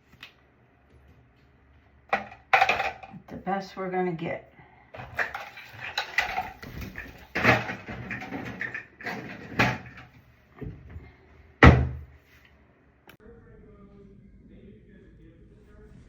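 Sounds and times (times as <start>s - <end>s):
objects being handled and put down: 2.1s - 3.2s, 5.0s - 12.1s.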